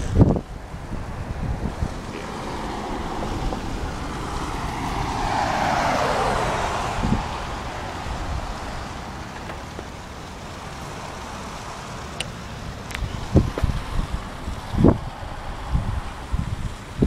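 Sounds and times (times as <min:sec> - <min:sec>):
vehicle passing by: 0:00.0 - 0:17.0
wind buffeting microphone: 0:00.0 - 0:17.0.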